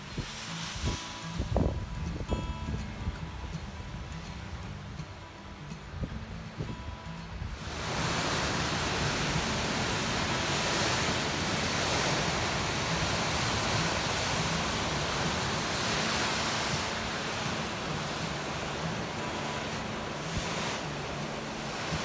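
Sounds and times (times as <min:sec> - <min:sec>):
lake surf washing in: 0:00.0 - 0:22.0
strong wind: 0:00.0 - 0:22.0.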